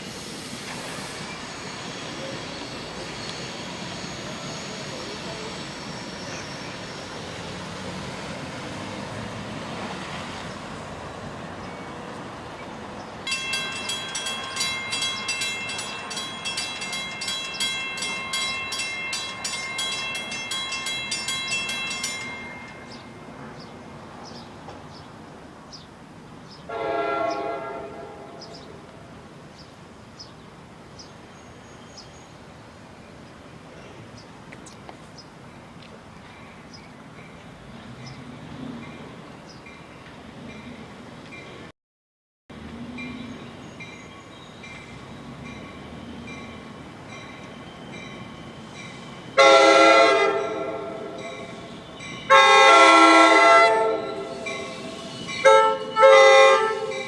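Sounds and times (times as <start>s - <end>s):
train wheel and rail noise: 0.0s - 41.7s, 42.5s - 57.0s
bell ringing: 13.3s - 23.4s
train horn blast: 26.7s - 28.7s, 49.4s - 57.0s.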